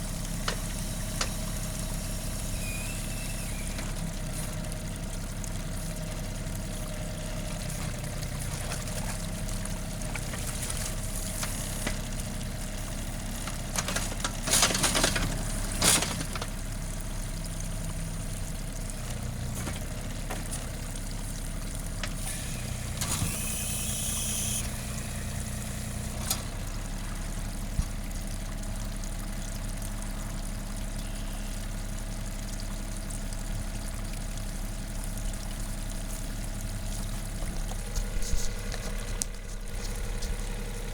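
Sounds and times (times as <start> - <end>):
loud rough engine bursts: 0.0 - 8.4
tractor diesel engine running: 0.0 - 40.9.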